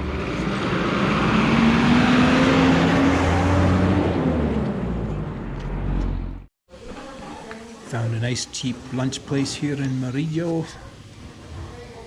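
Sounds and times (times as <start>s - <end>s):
motor vehicle driving past: 0.0s - 6.5s.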